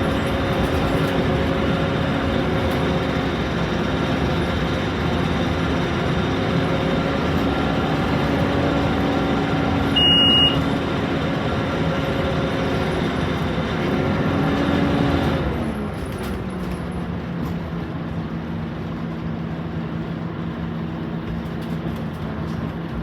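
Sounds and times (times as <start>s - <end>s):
bus diesel engine running: 0.0s - 23.0s
road noise: 0.0s - 23.0s
short high beep: 10.0s - 10.6s.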